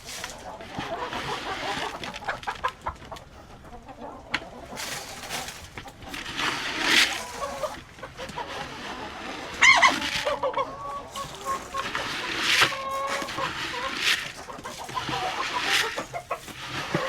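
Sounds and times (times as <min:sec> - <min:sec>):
scratchy rustling: 0:00.0 - 0:02.9, 0:04.7 - 0:17.0
chickens clucking: 0:00.0 - 0:17.0
chicken squawk: 0:07.0 - 0:17.0.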